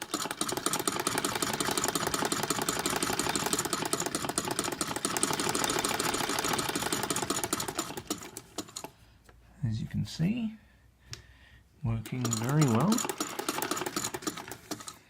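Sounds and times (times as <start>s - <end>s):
hand-cranked sewing machine stitching: 0.0s - 8.9s, 12.0s - 15.0s
bobbin rattling in shuttle: 12.2s - 14.9s.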